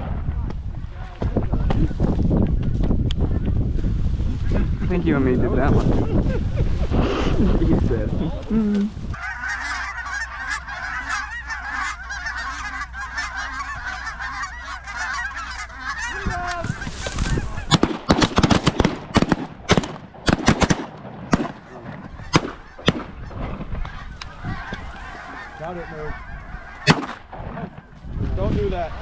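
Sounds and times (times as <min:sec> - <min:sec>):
geese honking and cackling: 0:09.2 - 0:28.2
shotgun blasts: 0:16.6 - 0:23.6, 0:26.7 - 0:28.0.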